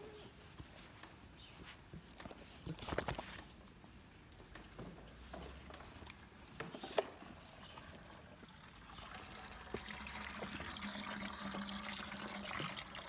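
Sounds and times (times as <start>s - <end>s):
water trickling and pouring: 7.9s - 13.0s.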